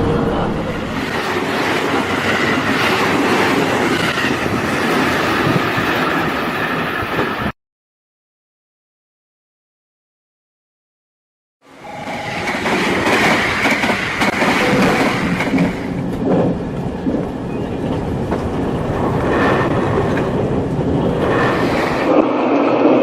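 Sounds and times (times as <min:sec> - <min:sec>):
train wheels clicking on rails: 0:12.0 - 0:22.2.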